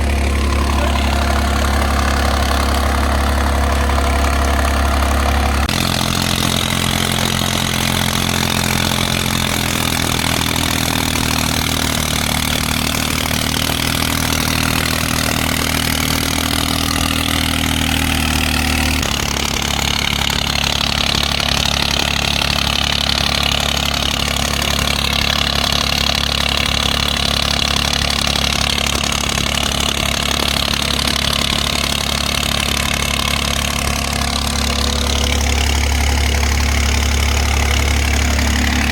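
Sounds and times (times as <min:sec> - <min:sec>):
tractor diesel engine idling: 0:00.0 - 0:38.9.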